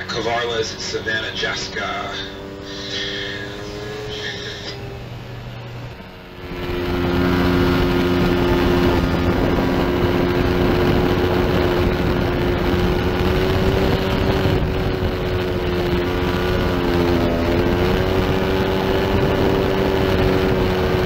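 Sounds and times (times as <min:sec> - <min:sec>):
motorcycle engine at high revs: 0:00.0 - 0:21.0
wind rushing: 0:06.0 - 0:19.9.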